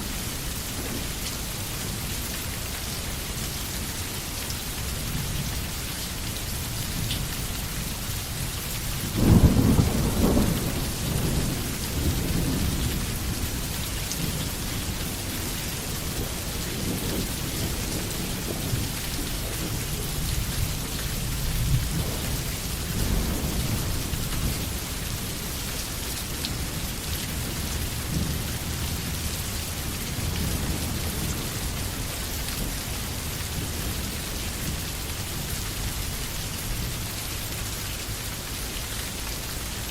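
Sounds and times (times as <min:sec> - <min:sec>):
rain hissing: 0:00.0 - 0:39.9
thunder clap and rumble: 0:09.1 - 0:25.8, 0:26.4 - 0:34.9.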